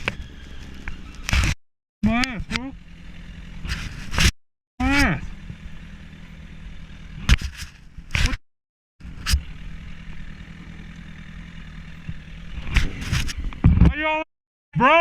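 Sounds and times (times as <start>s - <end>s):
motorcycle engine running: 0.0s - 8.4s, 9.0s - 13.8s.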